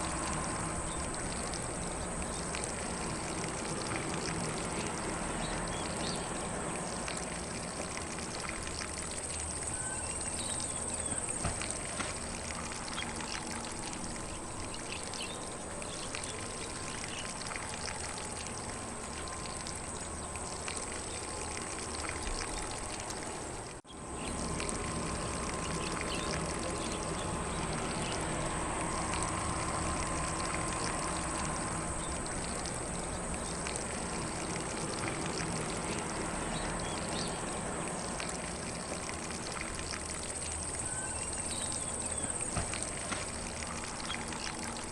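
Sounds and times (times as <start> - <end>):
sprinkler spraying water: 0.0 - 44.9
faint bird chirps: 9.7 - 11.4, 40.8 - 42.4.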